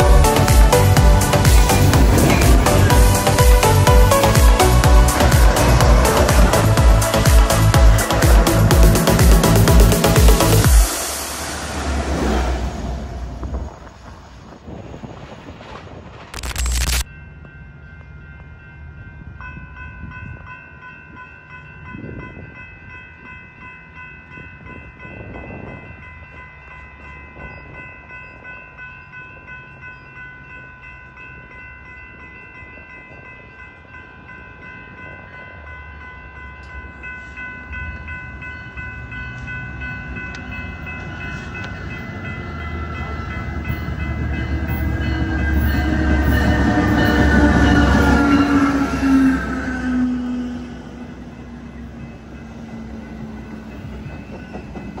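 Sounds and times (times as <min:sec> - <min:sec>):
crossing warning bells ringing: 0:00.0 - 0:14.0, 0:16.7 - 0:55.0
diesel train rumble: 0:00.0 - 0:16.8, 0:32.4 - 0:55.0.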